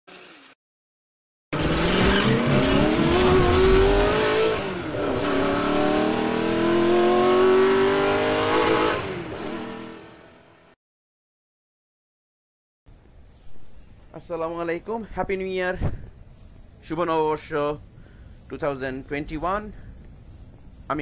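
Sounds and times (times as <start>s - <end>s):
racing car engine revving: 1.6s - 10.6s.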